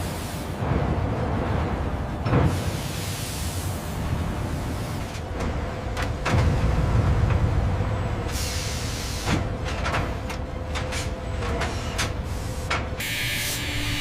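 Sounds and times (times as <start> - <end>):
machinery low rumble: 0.0 - 13.0
hiss: 2.5 - 3.9, 8.3 - 9.5, 11.7 - 12.7.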